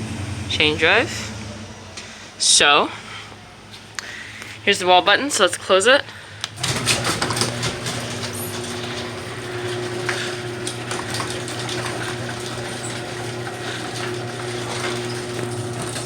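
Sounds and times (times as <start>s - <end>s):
garage door opener motor hum: 0.0s - 2.6s, 6.5s - 16.0s.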